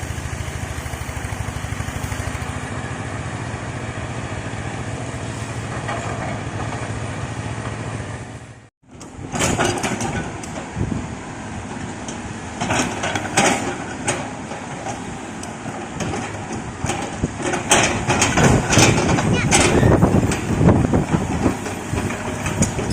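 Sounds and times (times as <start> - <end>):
excavator diesel engine running: 0.0 - 22.9
clanks and knocks: 5.7 - 7.0, 9.3 - 10.6, 12.6 - 22.9.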